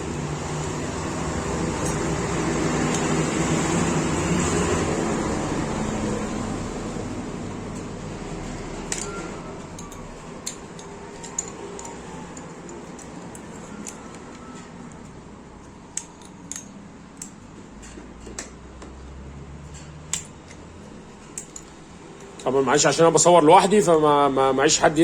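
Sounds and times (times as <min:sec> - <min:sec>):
metallic clicks of wrench and parts: 0:08.9 - 0:18.6, 0:19.7 - 0:22.5.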